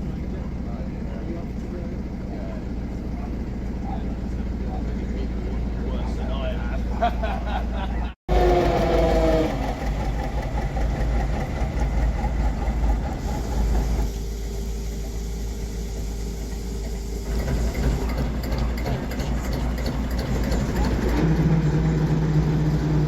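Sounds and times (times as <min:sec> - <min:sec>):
train rumbling: 0:00.0 - 0:23.0
train horn: 0:08.3 - 0:09.8.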